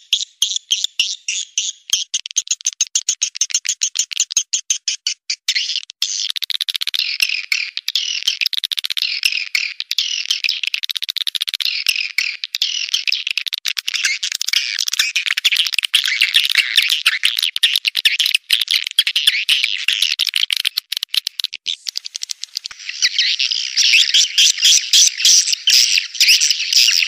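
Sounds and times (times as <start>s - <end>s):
rapid sharp clicks: 5.9s - 23.0s
swiftlets twittering: 21.3s - 27.0s.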